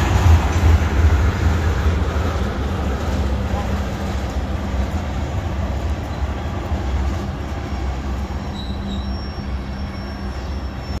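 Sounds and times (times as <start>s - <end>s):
train wheels rumbling on rails: 0.0s - 11.0s
high wheel squeals: 8.2s - 11.0s.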